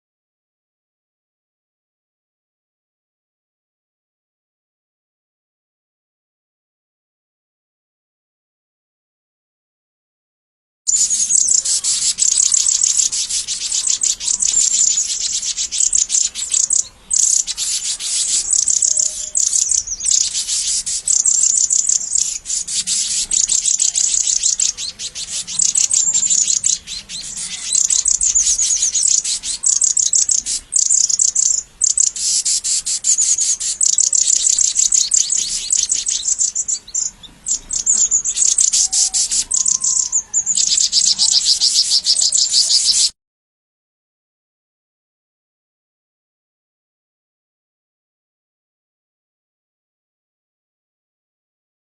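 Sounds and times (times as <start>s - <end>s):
birds chirping: 10.9s - 43.1s.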